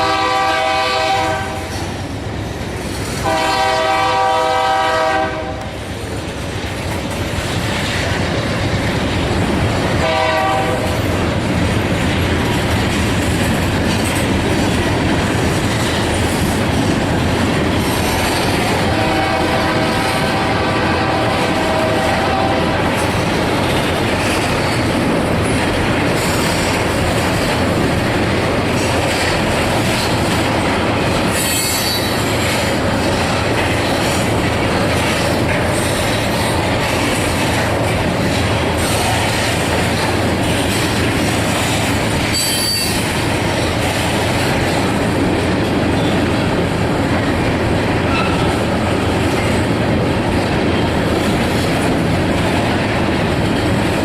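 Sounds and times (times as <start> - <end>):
train wheels rumbling on rail: 0.0 - 54.0
high-pitched wheel squeals: 31.3 - 32.3, 42.3 - 43.1.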